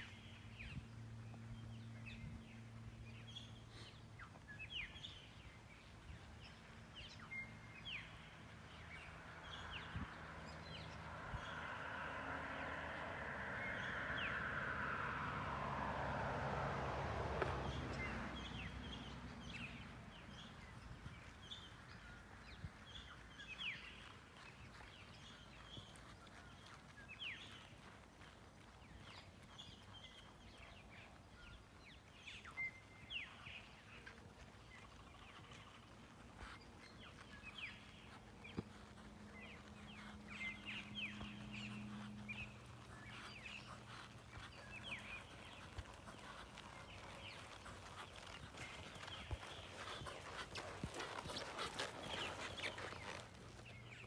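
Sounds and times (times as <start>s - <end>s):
birds chirping and whistling: 36.9s - 54.0s.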